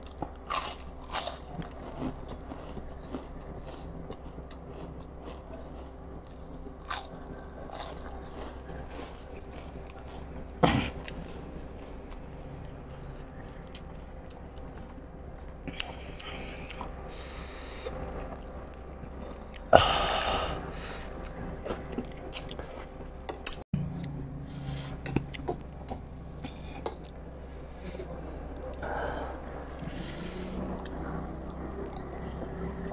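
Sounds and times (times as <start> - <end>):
crunchy bites of fried food: 0.0 - 11.0
person chewing food: 0.0 - 32.9.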